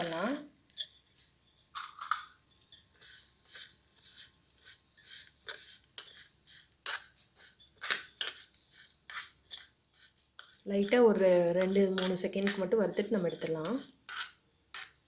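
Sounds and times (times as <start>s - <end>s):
spoon scraping a small pan: 0.0s - 15.0s.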